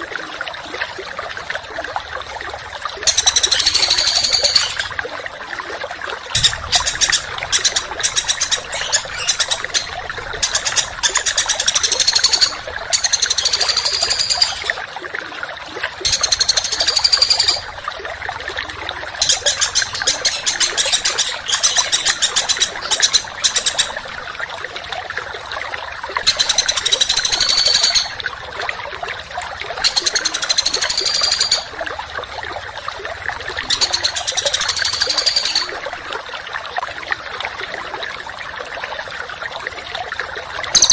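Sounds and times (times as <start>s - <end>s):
running water trickling: 0.0s - 40.9s
songbird singing trills: 3.1s - 4.9s, 6.4s - 14.8s, 16.1s - 17.7s, 19.2s - 24.0s, 26.3s - 28.2s, 29.8s - 31.7s, 33.7s - 35.7s.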